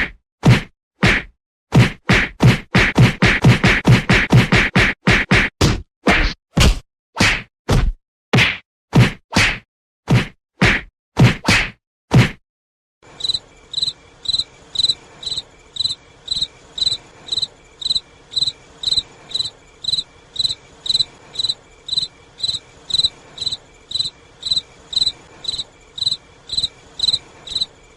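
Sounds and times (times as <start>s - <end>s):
cricket chirping: 13.0s - 27.9s.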